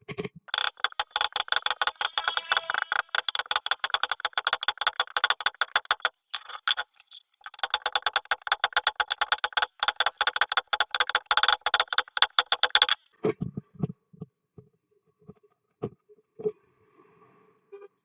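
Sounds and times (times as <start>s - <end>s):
rapid metallic clicking: 0.5s - 13.2s.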